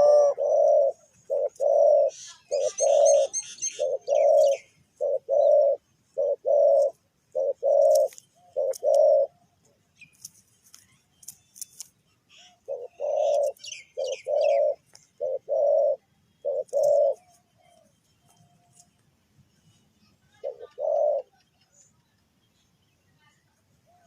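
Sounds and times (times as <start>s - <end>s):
dove cooing: 0.0s - 9.6s, 12.4s - 18.8s, 20.3s - 21.8s
small birds chirping: 0.0s - 24.0s.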